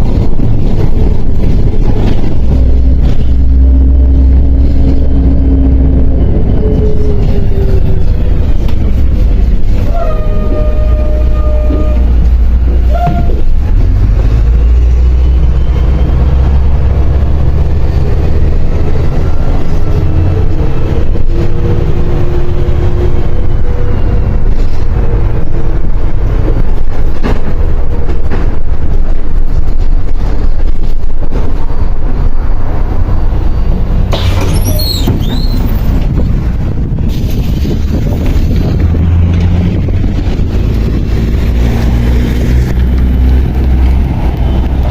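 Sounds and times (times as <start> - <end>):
bus engine and road rumble: 0.0 - 44.9
high-pitched squeal: 34.1 - 35.9.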